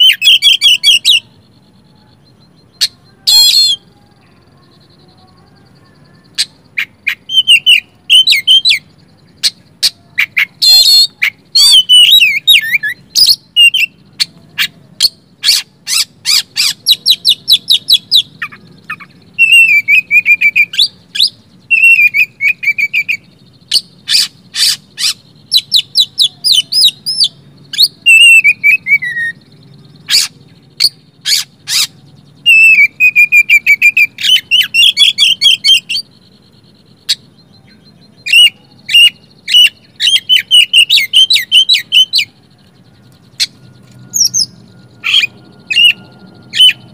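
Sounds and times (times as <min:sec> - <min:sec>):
bird singing varied song: 0:00.0 - 0:46.9.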